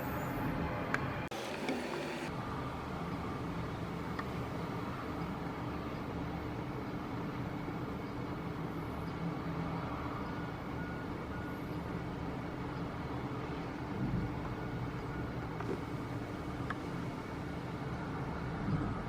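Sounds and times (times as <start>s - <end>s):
jet engines rumbling: 0.0s - 2.3s.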